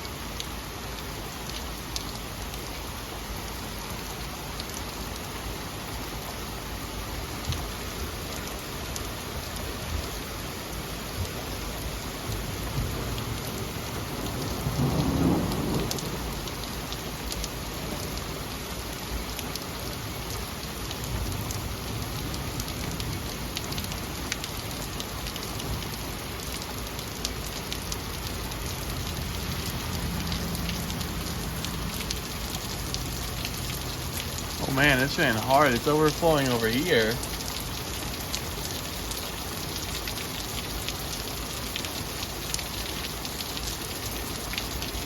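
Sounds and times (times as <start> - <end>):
heavy rain falling: 0.0 - 45.0
thunder rolling: 14.5 - 16.0.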